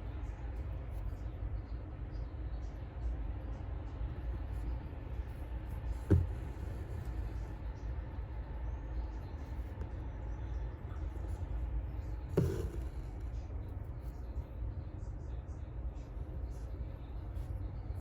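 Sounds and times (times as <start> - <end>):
short thump: 5.9 - 7.2, 12.3 - 13.1.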